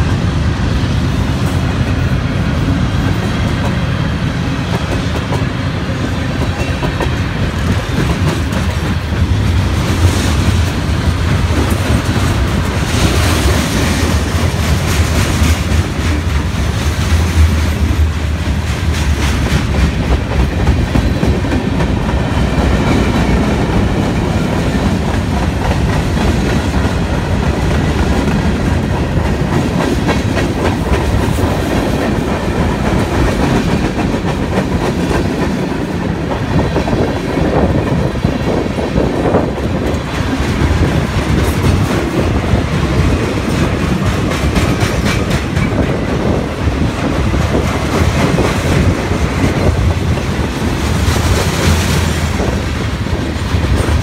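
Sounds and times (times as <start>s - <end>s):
freight train wheels clicking: 0.0s - 54.0s.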